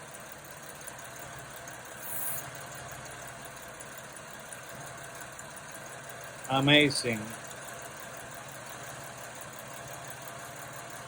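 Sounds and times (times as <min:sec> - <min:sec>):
car engine idling: 0:00.0 - 0:11.0
short spray hiss: 0:02.0 - 0:02.5.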